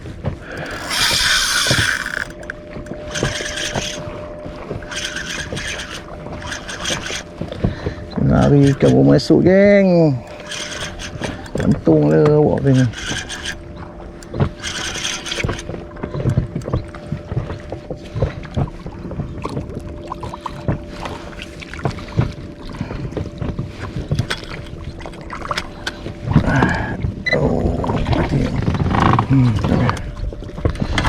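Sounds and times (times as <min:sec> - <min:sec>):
faint steady hum: 0:00.0 - 0:31.0
water against hull: 0:00.0 - 0:31.0
knocks and clicks of handling: 0:09.6 - 0:16.9, 0:24.0 - 0:26.1.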